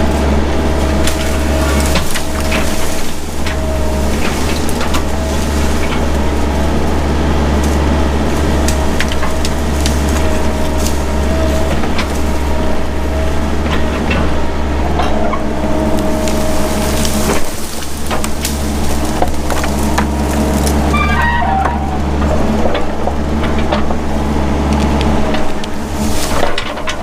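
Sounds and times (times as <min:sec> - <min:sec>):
branches snapping: 0:00.0 - 0:14.4, 0:15.7 - 0:27.0
excavator engine running: 0:00.0 - 0:27.0.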